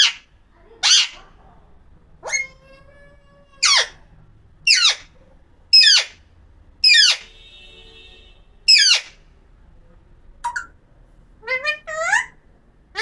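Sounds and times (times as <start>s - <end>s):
parrot screeching: 0.0s - 0.2s, 0.8s - 1.3s, 2.2s - 4.0s, 4.7s - 6.2s, 6.8s - 7.3s, 8.7s - 9.2s, 11.4s - 12.4s.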